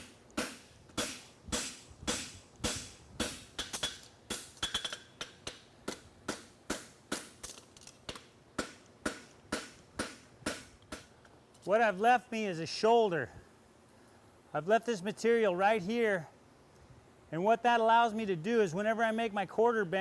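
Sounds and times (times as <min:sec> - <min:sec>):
hammer striking horseshoe on anvil: 0:00.0 - 0:11.1.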